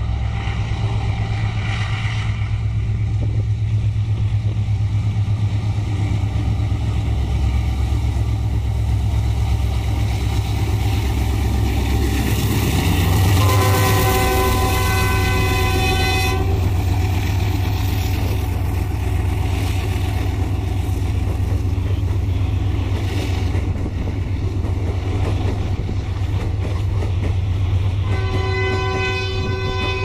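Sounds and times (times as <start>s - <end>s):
train horn: 13.2s - 17.2s, 28.0s - 30.0s.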